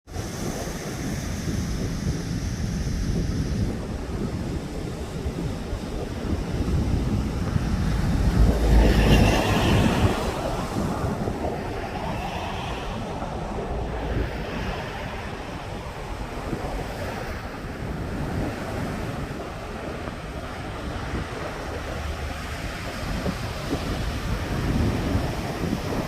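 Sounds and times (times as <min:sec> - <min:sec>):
surf breaking on sandy beach: 0:00.1 - 0:26.0
wind buffeting microphone: 0:00.1 - 0:26.0.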